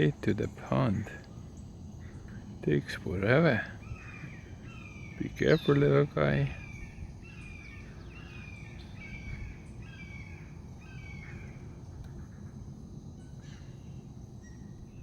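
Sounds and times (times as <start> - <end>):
low outdoor background noise: 0.0 - 15.0
bird calling falling notes: 2.0 - 12.5.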